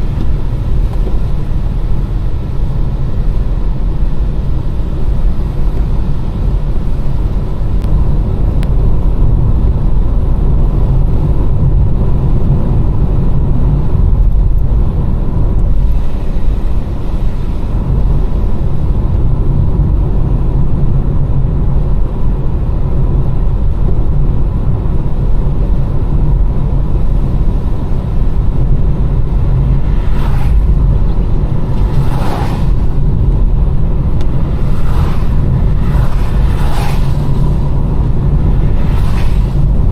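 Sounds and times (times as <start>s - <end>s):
car driving on wet road: 0.0s - 39.9s
hissing swishes: 34.3s - 39.9s.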